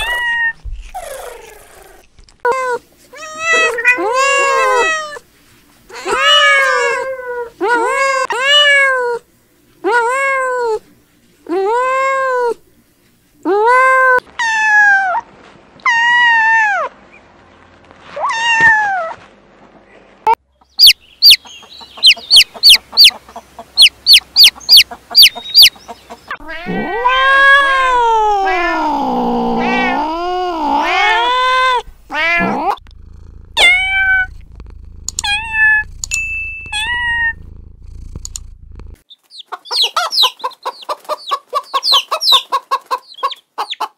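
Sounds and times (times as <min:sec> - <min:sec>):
shrill kitten squeaks: 0:02.5 - 0:05.2, 0:18.2 - 0:19.2, 0:26.4 - 0:32.8, 0:33.6 - 0:34.4, 0:35.2 - 0:38.1
kittens meowing: 0:03.2 - 0:05.2, 0:06.0 - 0:09.2, 0:26.4 - 0:38.3.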